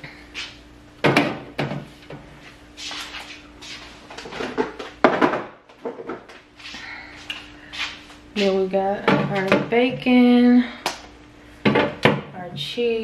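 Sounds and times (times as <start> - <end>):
containers knocking on shelves: 1.0 - 1.9, 4.4 - 6.3, 9.0 - 9.7, 11.6 - 12.3
scuffing and light clatter: 2.4 - 5.0.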